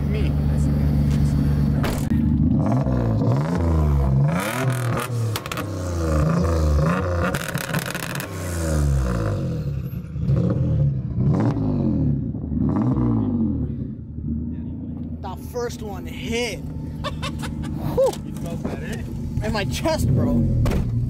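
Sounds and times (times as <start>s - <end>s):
car engine revving hard: 2.3s - 14.5s.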